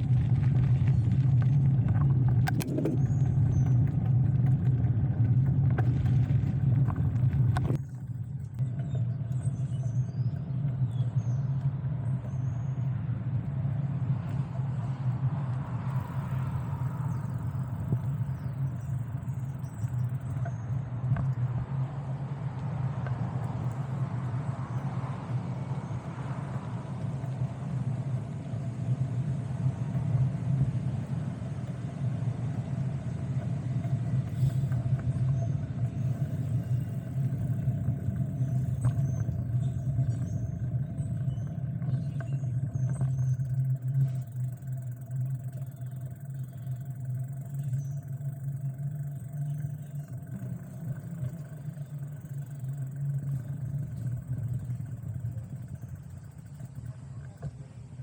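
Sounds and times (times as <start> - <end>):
wind on microphone: 0.0 - 7.9
bicycle road noise: 0.0 - 58.0.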